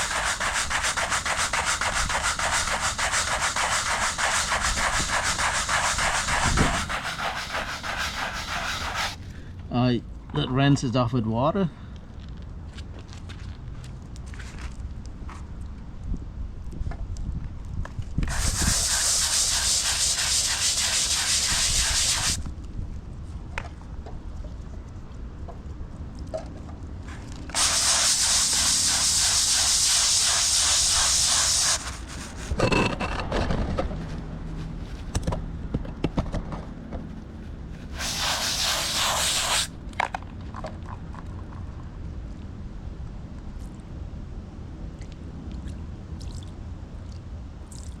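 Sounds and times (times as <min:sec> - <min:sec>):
hose spraying on concrete: 0:00.0 - 0:09.2, 0:18.2 - 0:22.4, 0:27.5 - 0:32.6, 0:37.8 - 0:39.7.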